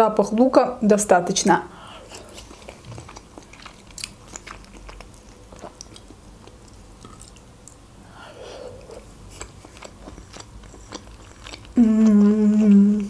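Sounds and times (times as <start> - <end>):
close chewing of food: 1.8 - 13.0.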